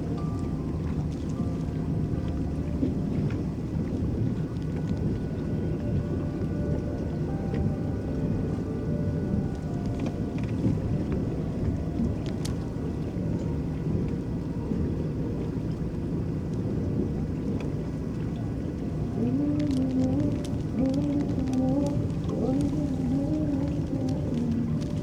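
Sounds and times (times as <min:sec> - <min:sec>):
water washing along boat hull: 0:00.0 - 0:25.0
small water ticks: 0:09.3 - 0:25.0.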